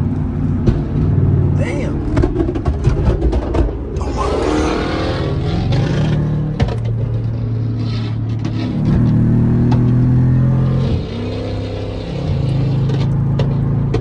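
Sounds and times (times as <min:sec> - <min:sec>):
car engine at high revs: 0:00.0 - 0:14.0
engine sharp pops: 0:00.5 - 0:01.3, 0:02.0 - 0:04.0, 0:05.4 - 0:10.1, 0:12.4 - 0:14.0.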